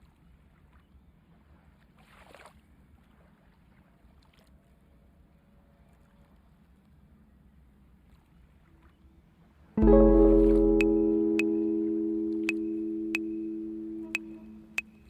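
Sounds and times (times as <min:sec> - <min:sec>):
faint low rumble: 0:09.8 - 0:14.8.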